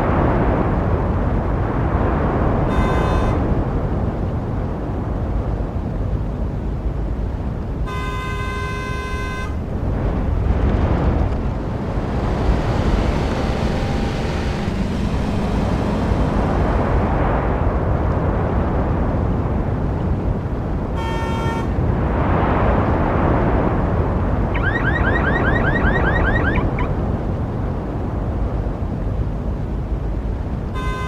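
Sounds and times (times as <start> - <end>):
car horn: 2.7 - 3.5, 7.8 - 9.7, 21.0 - 21.7, 30.7 - 31.0
road traffic passing: 7.8 - 21.9.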